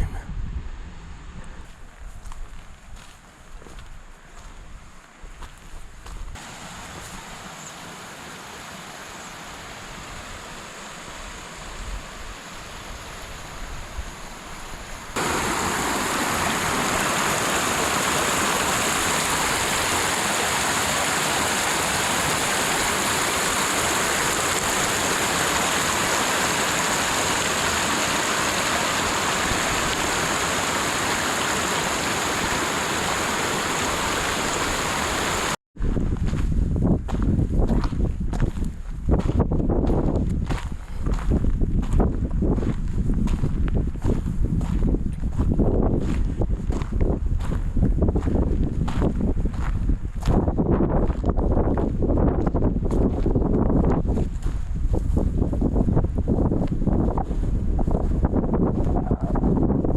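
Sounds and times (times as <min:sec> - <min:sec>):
stream rushing over rocks: 0:06.4 - 0:35.6.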